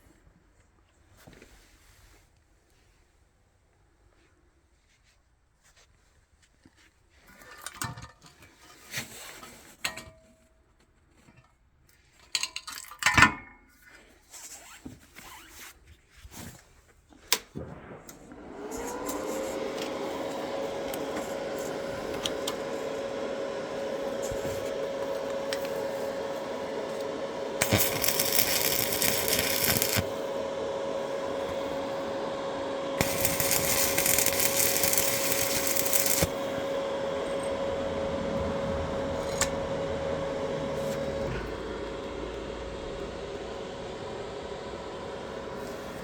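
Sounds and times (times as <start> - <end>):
electric power tool whining: 17.6 - 46.0.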